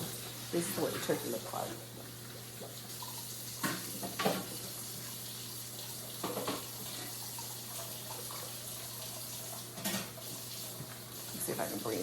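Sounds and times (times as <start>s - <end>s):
tap running into sink: 2.6s - 5.1s, 6.1s - 11.6s.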